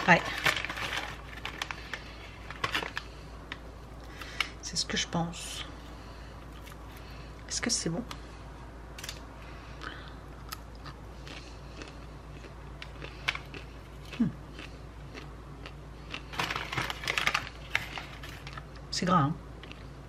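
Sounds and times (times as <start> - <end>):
person chewing food: 9.8 - 17.0.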